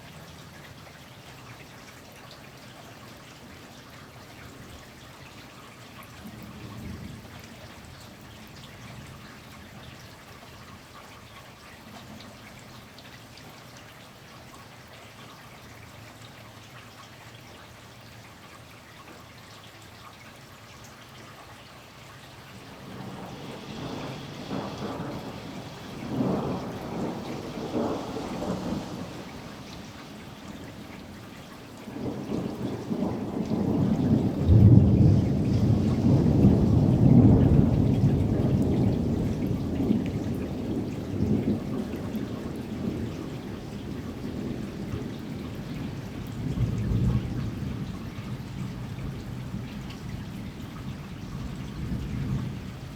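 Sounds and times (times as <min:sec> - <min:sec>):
steady rain: 0:00.0 - 0:52.9
thunder rumbling: 0:22.6 - 0:52.9.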